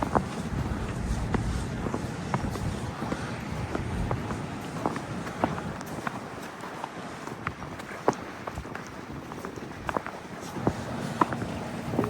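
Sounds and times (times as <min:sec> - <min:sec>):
low engine hum: 0:00.0 - 0:05.9, 0:10.5 - 0:12.0
footsteps on snow: 0:00.0 - 0:12.0.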